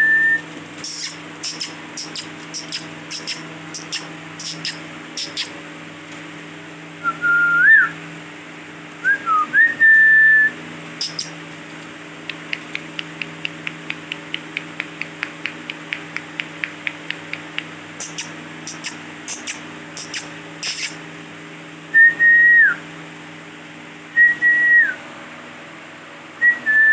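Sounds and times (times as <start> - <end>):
parakeet whistling: 0.0 - 5.5, 9.1 - 11.4, 18.0 - 21.0
parakeet high chirps: 0.8 - 5.6, 11.0 - 11.4, 18.0 - 21.0.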